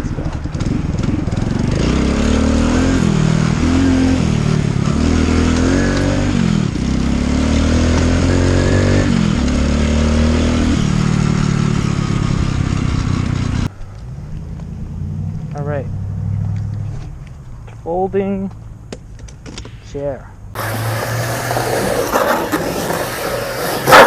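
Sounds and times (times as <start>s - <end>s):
motorcycle engine accelerating: 0.0s - 17.2s, 20.6s - 24.0s.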